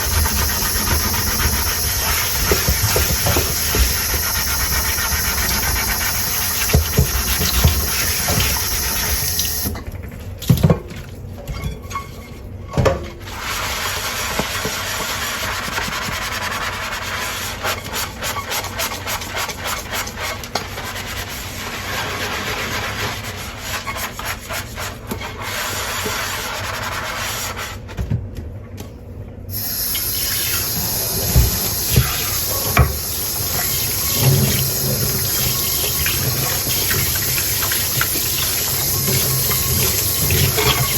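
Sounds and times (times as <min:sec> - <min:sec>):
running tap water: 0:00.0 - 0:09.8, 0:29.5 - 0:40.9
sponge scrubbing dishes: 0:00.0 - 0:27.9, 0:29.8 - 0:40.9.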